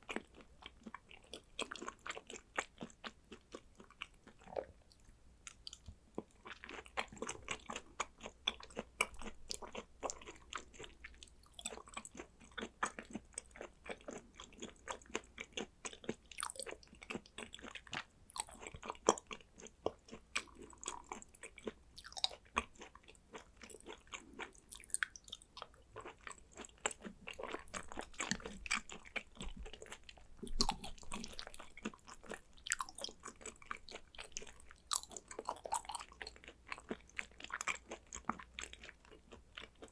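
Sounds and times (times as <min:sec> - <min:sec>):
person chewing wetly: 0:00.0 - 0:39.9.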